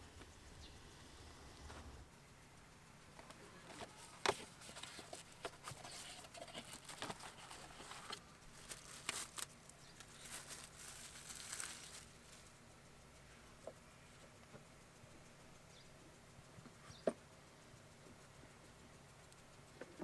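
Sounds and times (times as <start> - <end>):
air filter rustling and crinkling: 3.2 - 12.7.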